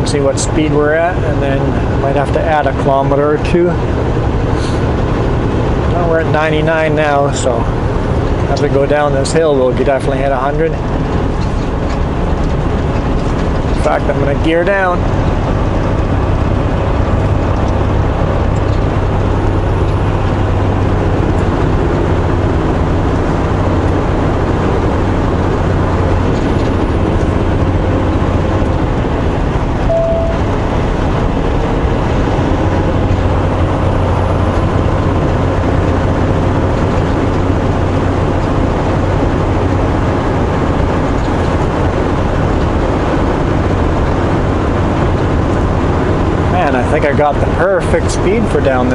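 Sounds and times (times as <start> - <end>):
road noise: 0.0 - 48.9
truck diesel engine droning: 0.0 - 48.9
brief tone: 29.9 - 30.6.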